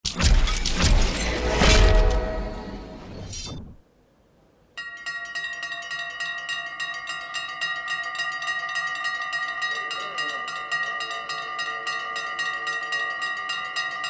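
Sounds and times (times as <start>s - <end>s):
level crossing bell ringing: 4.8s - 14.0s.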